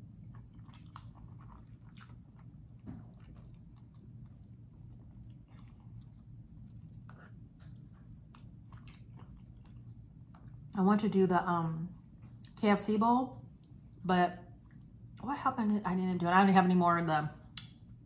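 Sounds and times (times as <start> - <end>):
person chewing food: 0.0 - 10.7, 11.9 - 12.6
low steady hum: 0.0 - 18.0.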